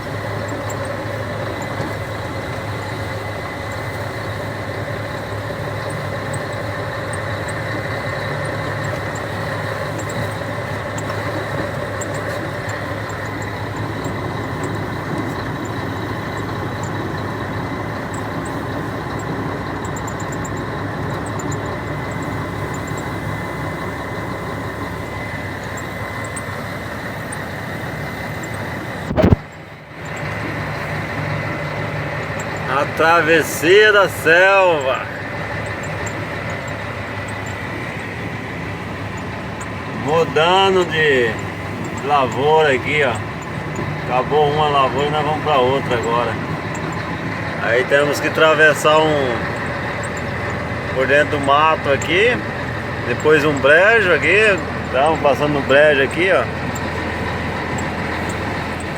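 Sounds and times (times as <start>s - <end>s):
diesel truck engine running: 0.0s - 58.9s.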